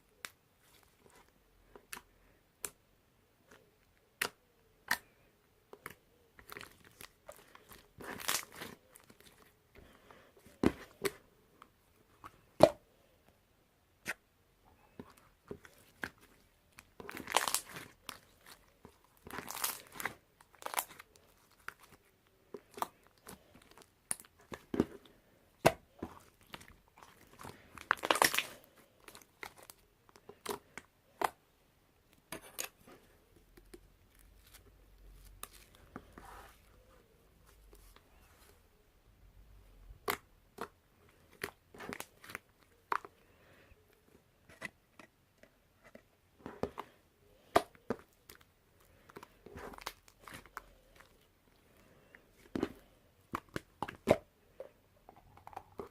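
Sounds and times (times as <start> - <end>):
slime crackling: 5.8 - 9.5, 15.0 - 24.9, 25.6 - 30.8.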